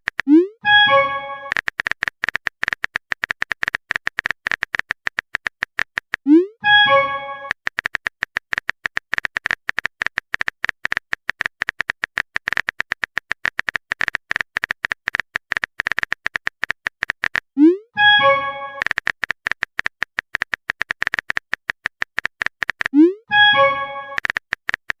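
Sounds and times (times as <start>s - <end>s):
phone keyboard tapping: 0.0s - 25.0s
short chime: 6.6s - 7.5s.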